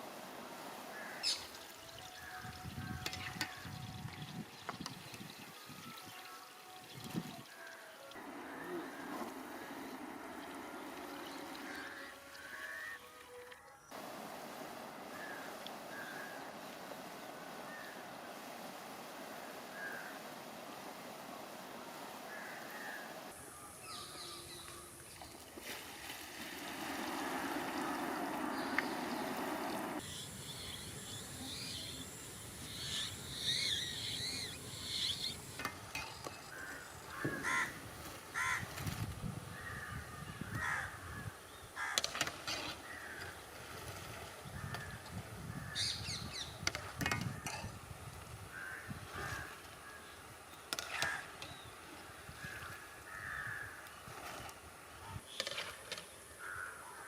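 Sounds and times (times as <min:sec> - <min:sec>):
birds calling: 0:00.8 - 0:03.6, 0:08.2 - 0:13.1, 0:26.5 - 0:38.8, 0:44.5 - 0:46.6.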